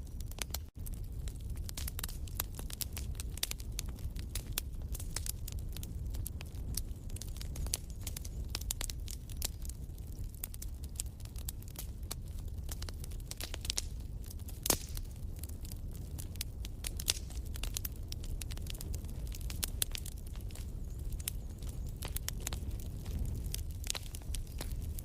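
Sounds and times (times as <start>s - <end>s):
fireplace fire crackling: 0.0s - 25.0s.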